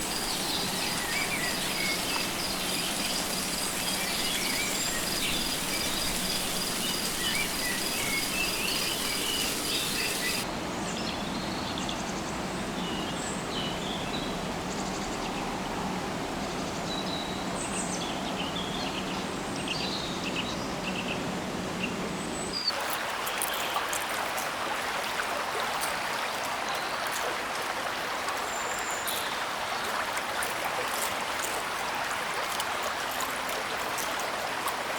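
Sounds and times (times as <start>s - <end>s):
birds chirping: 0.0s - 10.5s
running water hiss: 0.0s - 10.5s, 22.7s - 34.9s.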